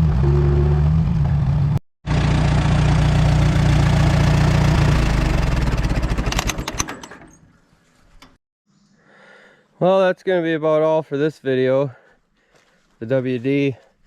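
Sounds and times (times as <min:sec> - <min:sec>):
tractor engine running: 0:00.0 - 0:07.4.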